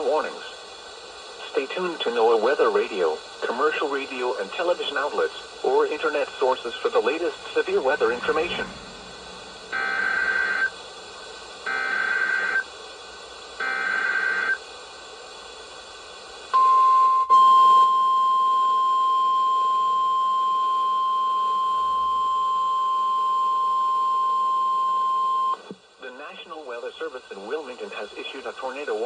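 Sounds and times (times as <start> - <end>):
warbling data bursts: 5.7 - 12.6
steady warning alarm tone: 6.6 - 10.8, 11.6 - 12.7, 13.6 - 14.6, 16.6 - 25.6.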